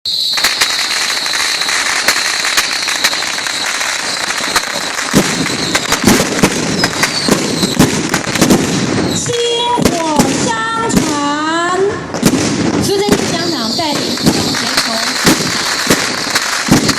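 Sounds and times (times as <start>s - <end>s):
fireworks crackling and banging: 0.1s - 16.9s.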